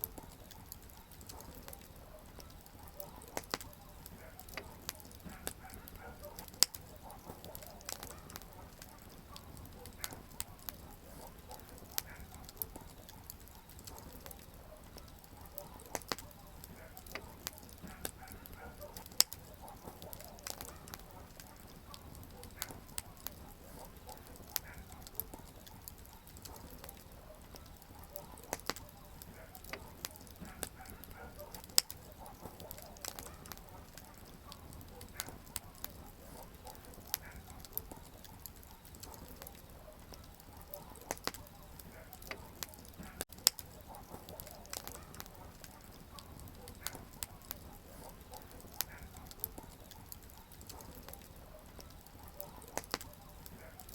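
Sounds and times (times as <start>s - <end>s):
loud wood snaps: 0.0s - 10.8s, 15.8s - 23.4s, 24.1s - 36.0s, 41.0s - 47.6s, 51.8s - 53.1s
campfire crackling and hissing: 0.0s - 53.9s.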